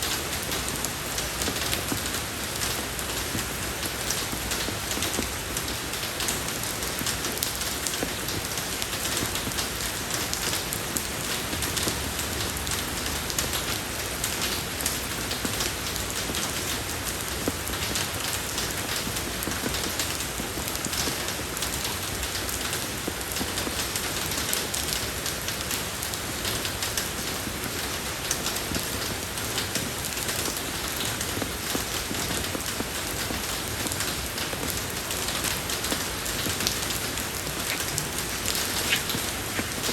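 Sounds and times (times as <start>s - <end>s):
rain falling on a road: 0.0s - 39.9s.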